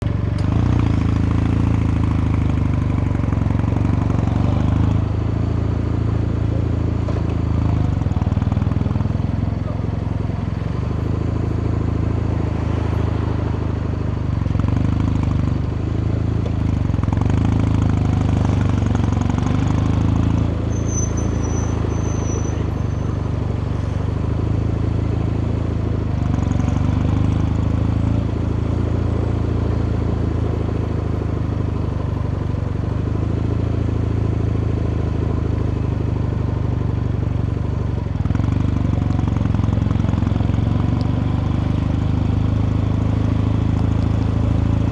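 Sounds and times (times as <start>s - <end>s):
motorcycle engine and exhaust: 0.0s - 44.9s.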